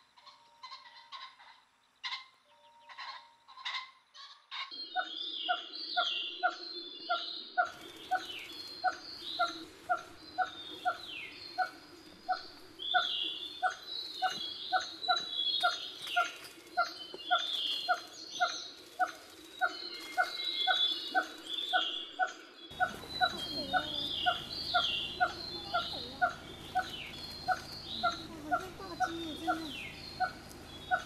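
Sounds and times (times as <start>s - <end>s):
higher bird chirping: 0.1s - 31.0s
bird pulsed note: 22.7s - 31.0s
low hum: 22.7s - 31.0s.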